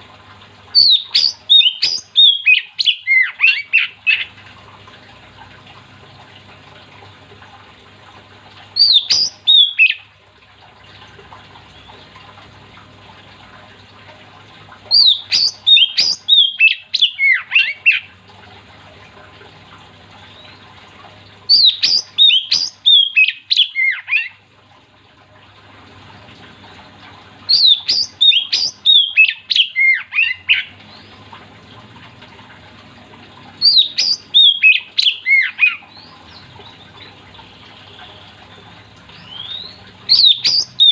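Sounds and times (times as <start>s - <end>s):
songbird whistling phrases: 0.8s - 4.3s, 8.8s - 10.0s, 14.9s - 18.1s, 21.5s - 24.4s, 27.5s - 30.7s, 33.6s - 36.1s, 39.2s - 40.9s.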